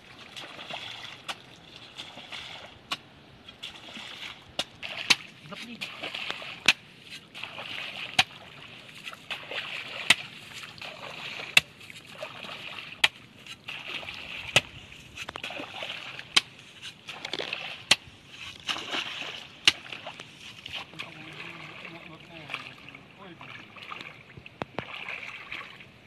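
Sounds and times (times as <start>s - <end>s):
water splashing and sloshing: 0.0s - 26.0s.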